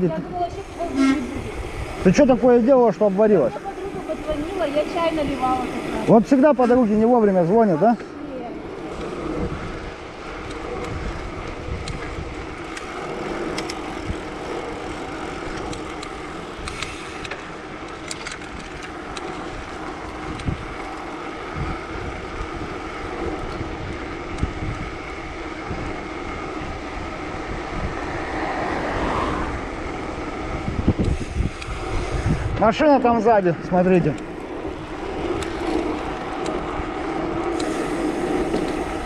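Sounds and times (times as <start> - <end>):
road hum from riding: 0.0 - 39.0
wind buffeting microphone: 0.0 - 39.0.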